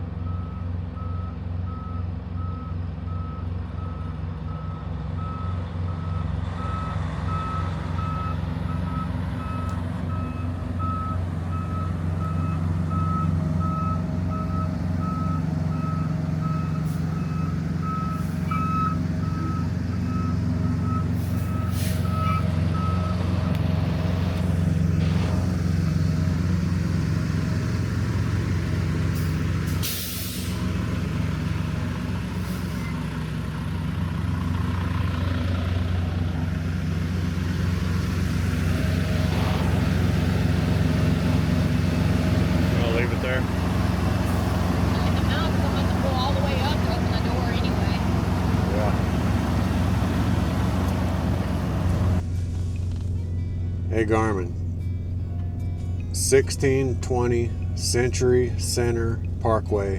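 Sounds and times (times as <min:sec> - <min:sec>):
truck backup alarm beeping: 0:00.0 - 0:52.2, 0:53.2 - 0:59.9
diesel engine idling: 0:00.0 - 0:59.9
air brake hiss: 0:21.2 - 0:22.2, 0:29.2 - 0:30.6.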